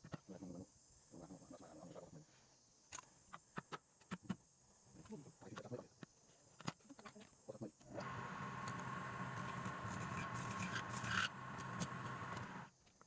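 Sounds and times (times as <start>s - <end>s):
lathe motor humming: 8.0s - 12.7s.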